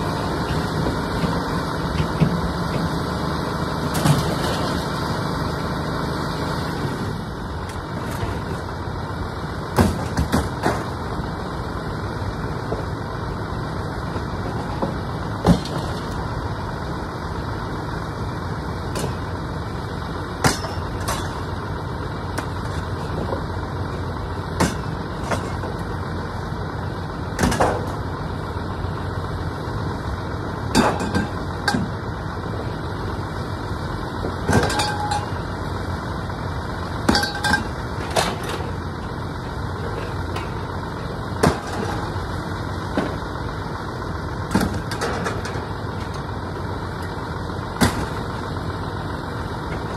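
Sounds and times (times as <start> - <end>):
vehicle engine idling: 0.0 - 49.9
scrap metal knocks and clanks: 24.6 - 25.8, 34.4 - 35.4, 37.1 - 38.8, 41.4 - 42.2, 44.5 - 46.2.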